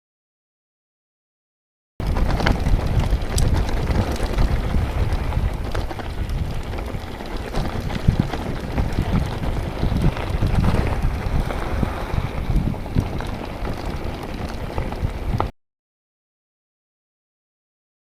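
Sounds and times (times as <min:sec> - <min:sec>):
light clicks and rattles: 0:02.0 - 0:11.1
wind buffeting microphone: 0:02.0 - 0:15.5.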